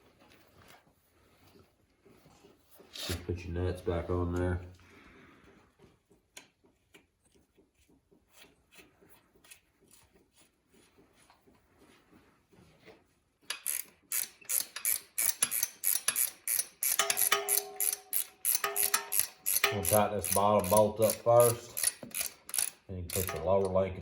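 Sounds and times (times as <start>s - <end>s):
ratchet wrench cranking: 13.5s - 23.9s.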